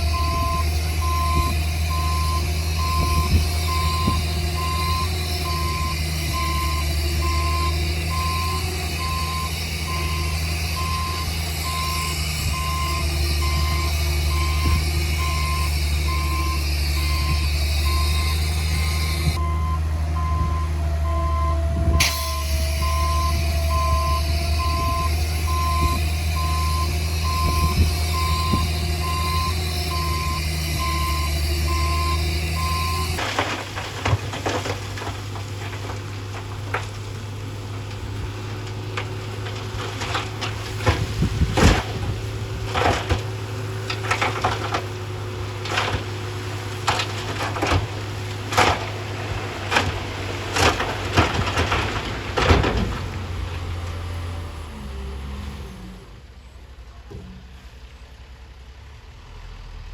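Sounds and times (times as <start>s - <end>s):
diesel engine running: 0.0s - 59.9s
backup alarm beeping: 0.1s - 33.0s
sharp cracks and knocks: 33.0s - 54.0s.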